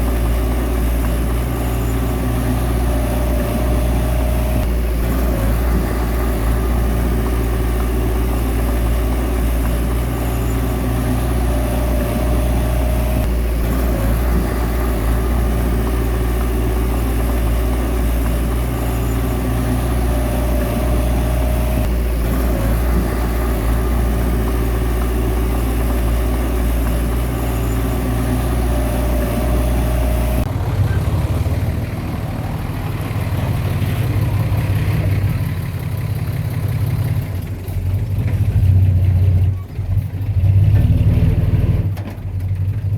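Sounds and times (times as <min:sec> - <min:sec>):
high-pitched whine: 0:00.0 - 0:30.5
bulldozer diesel engine running: 0:00.0 - 0:42.9.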